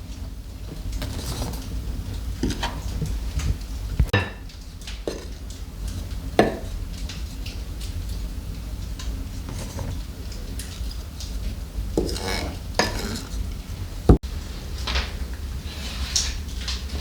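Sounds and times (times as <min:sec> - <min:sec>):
hard objects knocking and clinking: 0:04.0 - 0:05.6.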